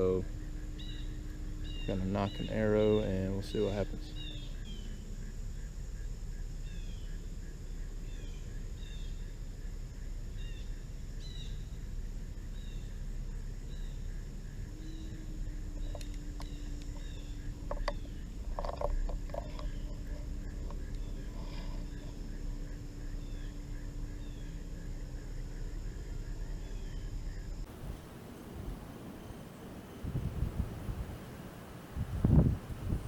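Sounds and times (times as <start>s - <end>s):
bird chirping: 0.0s - 5.8s, 13.6s - 24.7s, 27.7s - 33.0s
steady low hum: 0.0s - 33.0s
steady hiss: 27.6s - 33.0s.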